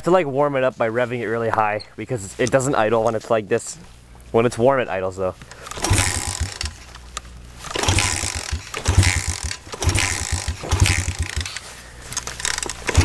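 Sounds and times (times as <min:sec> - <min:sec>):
motorbike engine revving and sputtering: 0:05.8 - 0:06.9, 0:07.6 - 0:11.7, 0:12.4 - 0:13.0.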